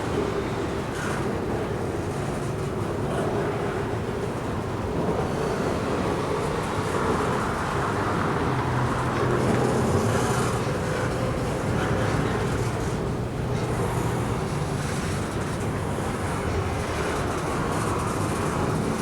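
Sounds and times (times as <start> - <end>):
diesel locomotive engine hum: 0.0 - 19.0
train cars rolling: 5.9 - 19.0.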